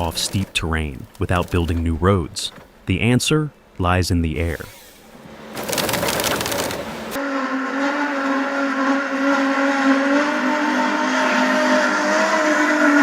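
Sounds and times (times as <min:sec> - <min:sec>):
engine running with whine: 0:04.7 - 0:13.0.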